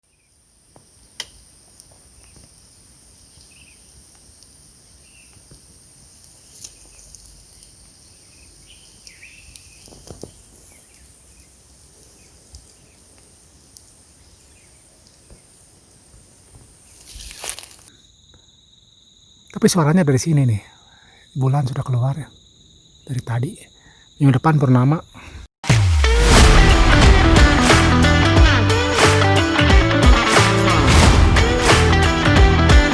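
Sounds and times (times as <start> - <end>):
night insects droning: 0.1 - 25.3.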